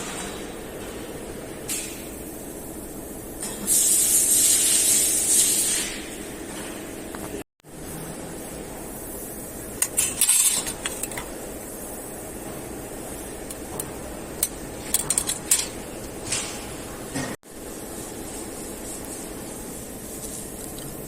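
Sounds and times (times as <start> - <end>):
steady background hum: 0.0 - 21.0
small metal parts clinking: 9.8 - 11.2, 14.4 - 15.8.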